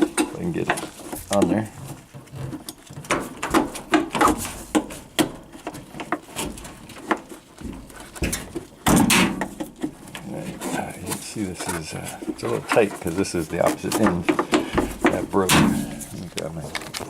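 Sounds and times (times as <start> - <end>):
metal spring clinking and scraping: 13.8 - 16.3.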